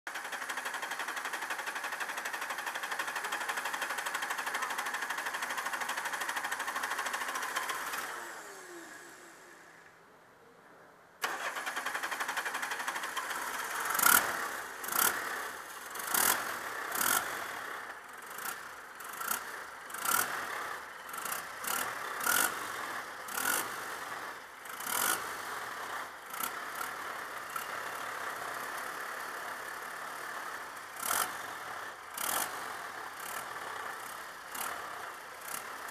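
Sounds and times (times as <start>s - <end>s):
diesel engine revving: 11.2s - 35.9s.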